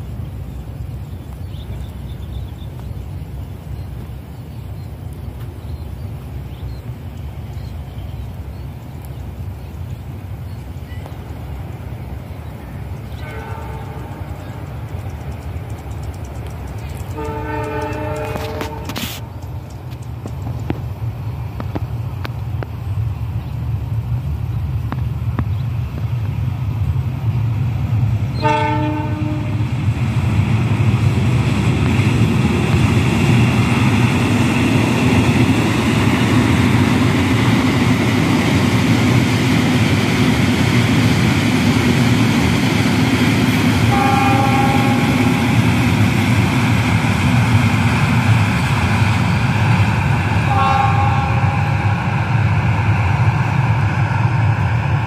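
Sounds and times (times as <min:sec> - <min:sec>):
train wheels rushing on rails: 0:00.0 - 0:55.0
train horn blast: 0:13.1 - 0:14.6, 0:17.1 - 0:19.3, 0:28.3 - 0:29.8, 0:43.8 - 0:45.8, 0:50.4 - 0:52.1.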